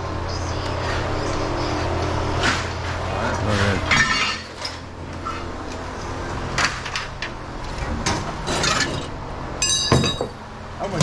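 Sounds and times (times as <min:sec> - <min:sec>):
steady low hum: 0:00.0 - 0:11.0
scrap metal clattering: 0:02.4 - 0:05.5, 0:06.5 - 0:10.4
metal clang ringing: 0:09.6 - 0:10.4.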